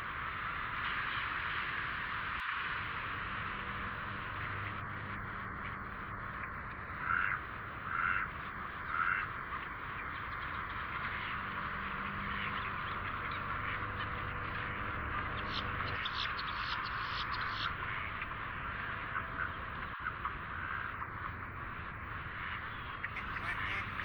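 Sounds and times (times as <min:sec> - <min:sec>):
ducks quacking: 0:06.3 - 0:24.0
chatter of bird calls: 0:06.4 - 0:24.0
sharp rapid bird calls: 0:12.2 - 0:21.0, 0:22.3 - 0:24.0.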